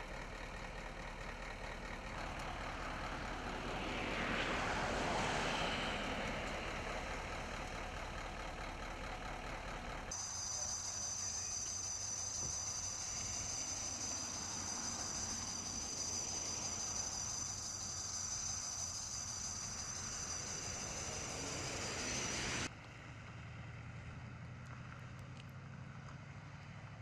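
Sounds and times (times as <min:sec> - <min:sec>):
vehicle noise: 0:00.0 - 0:27.0
low hum: 0:10.2 - 0:22.7
steady high-pitched tone: 0:10.2 - 0:22.7.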